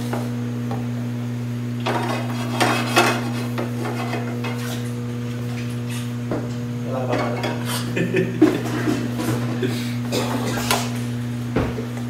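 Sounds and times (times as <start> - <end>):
steady low hum: 0.0 - 12.0
metal utensils scraping a pan: 1.9 - 4.8.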